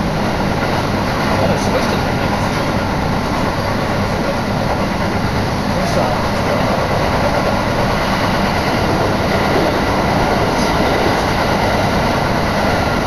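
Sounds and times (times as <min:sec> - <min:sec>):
train wheel and track noise: 0:00.0 - 0:13.0
wind on microphone: 0:06.6 - 0:13.0.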